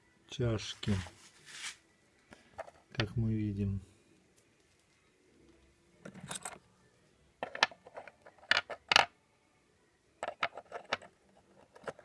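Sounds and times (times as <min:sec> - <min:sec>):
metal parts clinking together: 0:06.0 - 0:06.6.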